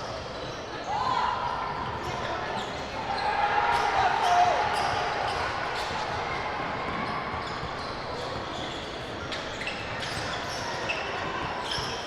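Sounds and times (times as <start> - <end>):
sneaker squeaks: 7.0 - 12.0.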